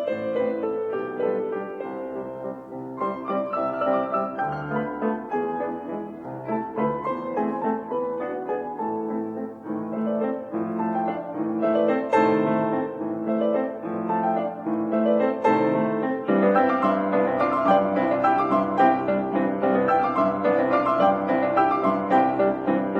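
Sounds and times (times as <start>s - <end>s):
classical piano music: 0.0s - 22.9s.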